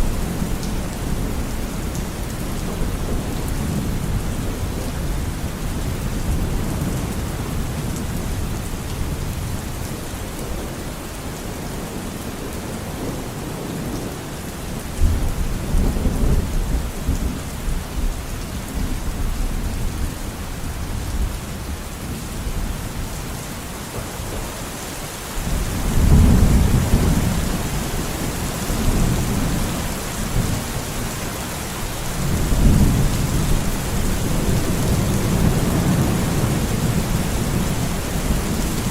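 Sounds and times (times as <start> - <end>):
steady rain: 0.0 - 38.9
rolling thunder: 25.4 - 31.2.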